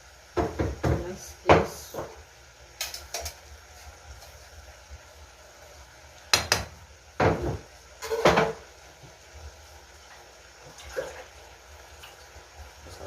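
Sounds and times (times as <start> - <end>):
kitchen rattling clatter: 7.2 - 8.6.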